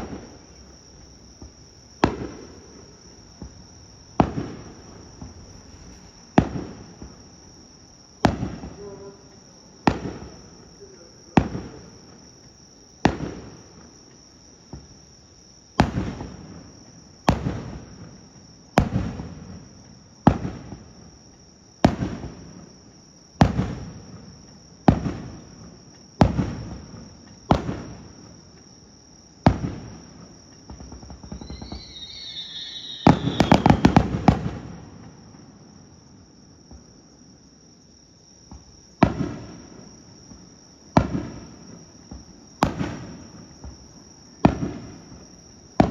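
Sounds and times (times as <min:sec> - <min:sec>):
crackling firework volley: 0:00.0 - 0:15.1, 0:15.7 - 0:37.0, 0:38.4 - 0:45.9
firework shells bursting: 0:29.4 - 0:35.2
falling firework whistle: 0:29.4 - 0:35.4.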